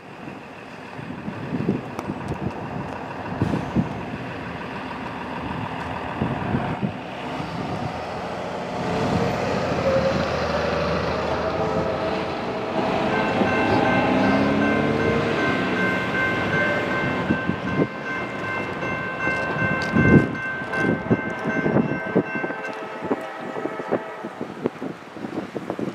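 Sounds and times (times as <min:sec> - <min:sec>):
diesel locomotive engine: 0:00.0 - 0:25.9
wind on microphone: 0:01.0 - 0:04.4, 0:05.4 - 0:25.9
locomotive horn chord: 0:09.1 - 0:18.6, 0:19.9 - 0:24.7.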